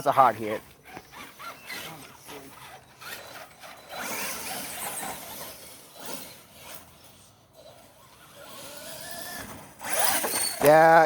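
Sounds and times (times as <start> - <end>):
toy truck motor whining: 0.9 - 11.0
toy truck clattering over ground: 8.4 - 11.0.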